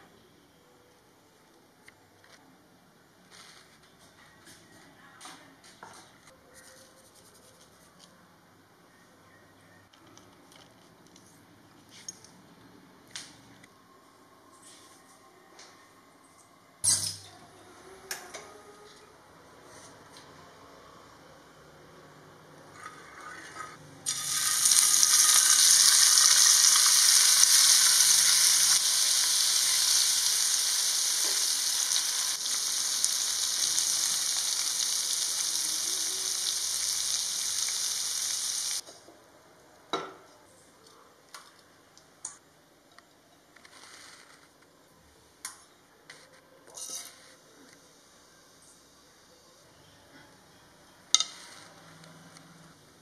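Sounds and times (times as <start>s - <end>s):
cheese sizzling in pan: 24.1s - 38.8s.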